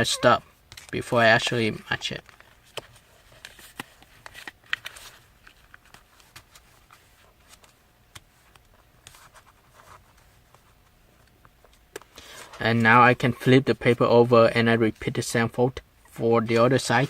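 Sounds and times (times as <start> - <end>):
paper rustling and crinkling: 2.1 - 12.7
soft paper clicks: 2.2 - 9.2.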